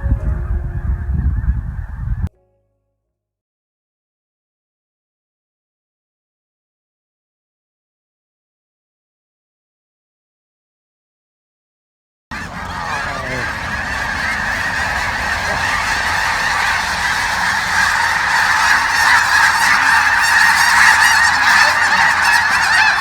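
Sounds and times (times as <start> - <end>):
flock of geese honking: 0.0 - 2.3, 12.3 - 23.0.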